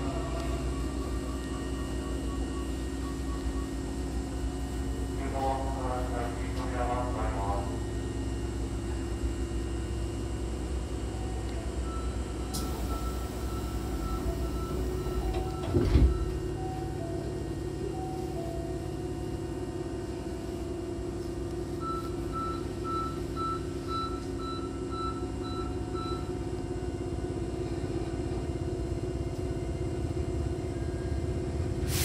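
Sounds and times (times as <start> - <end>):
train electrical hum: 0.0 - 32.0.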